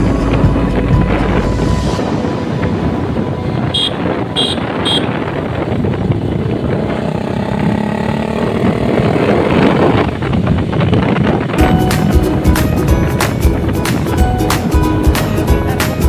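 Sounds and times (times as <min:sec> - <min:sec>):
wind and road noise: 0:00.0 - 0:16.0
motorcycle engine running: 0:03.7 - 0:15.8.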